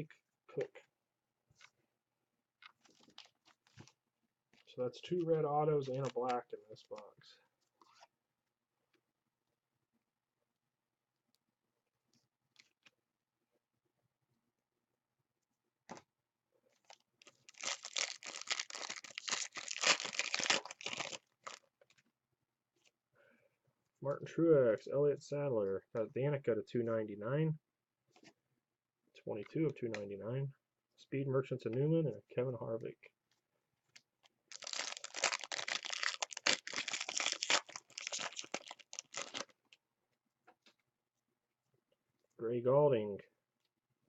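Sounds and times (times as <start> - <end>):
foil wrapper tearing and crinkling: 16.8 - 21.6, 34.5 - 39.5.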